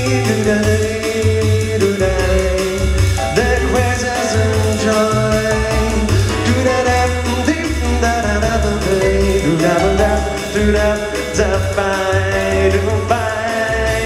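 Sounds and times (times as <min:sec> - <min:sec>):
bass line: 0:00.0 - 0:14.0
melodic solo: 0:09.0 - 0:13.1.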